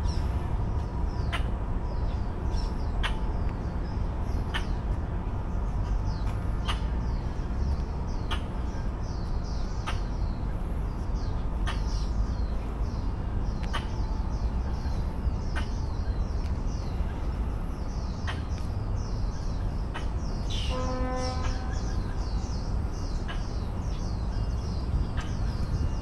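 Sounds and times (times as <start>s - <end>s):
small birds chirping: 0.0s - 26.0s
steady low rumble: 0.0s - 26.0s.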